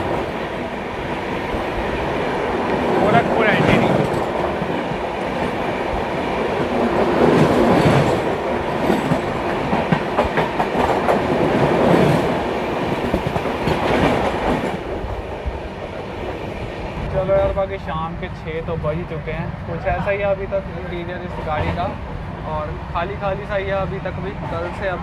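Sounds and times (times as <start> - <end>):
train wheels rumbling on track: 0.0 - 25.0
wheels clacking over rail joints: 1.9 - 5.8.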